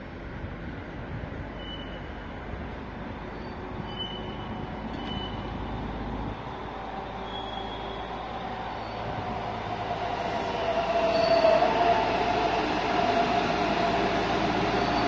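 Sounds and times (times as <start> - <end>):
train rumbling: 0.0 - 15.0
short high squeaks: 3.4 - 5.5.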